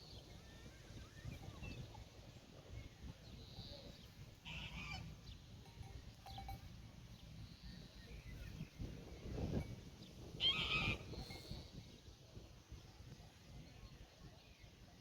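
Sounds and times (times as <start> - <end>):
faint bird chirps: 2.7 - 11.9
harsh farm animal call: 4.5 - 5.1.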